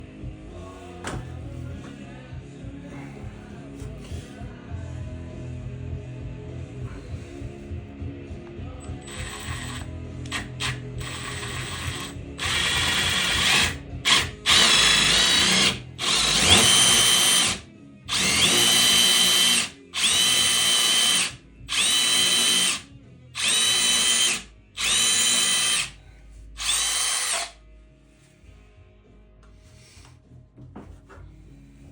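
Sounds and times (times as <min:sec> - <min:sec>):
power drill whining: 0:09.0 - 0:22.8, 0:23.4 - 0:26.0, 0:26.6 - 0:27.6.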